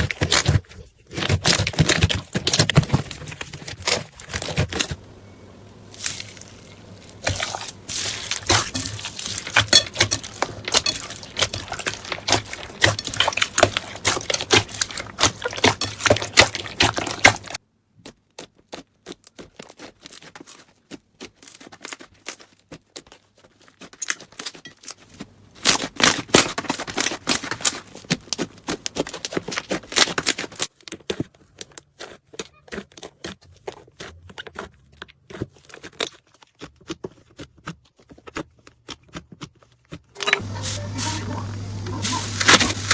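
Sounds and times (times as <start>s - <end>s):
slime crackling and popping: 5.8s - 17.6s.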